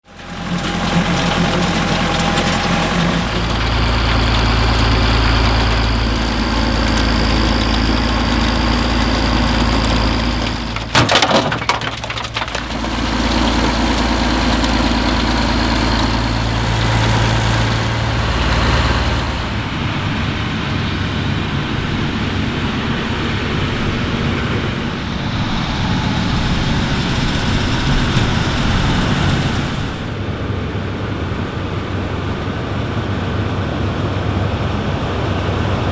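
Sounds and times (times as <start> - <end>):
tractor and harvester engines: 0.0 - 35.9.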